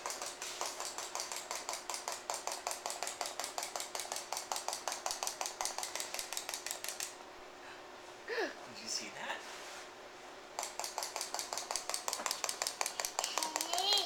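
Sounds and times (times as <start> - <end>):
wind-up toy clockwork clicking: 10.8 - 14.0.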